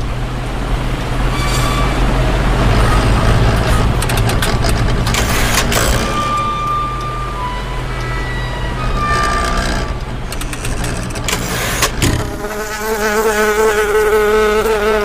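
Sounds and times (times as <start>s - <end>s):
loud steady buzzing: 2.1s - 15.0s
short high tones: 6.2s - 9.5s.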